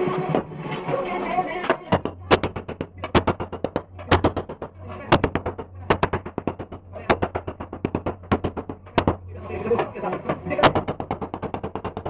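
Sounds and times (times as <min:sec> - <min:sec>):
low steady hum: 0:00.0 - 0:12.0
hammer knocking on sheet metal: 0:01.9 - 0:09.2, 0:10.0 - 0:12.0.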